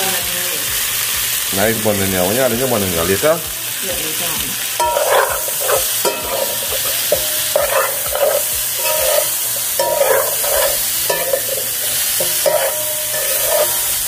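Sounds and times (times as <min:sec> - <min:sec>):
food sizzling: 0:00.0 - 0:14.0
metal spoon scraping a pot: 0:04.8 - 0:14.0.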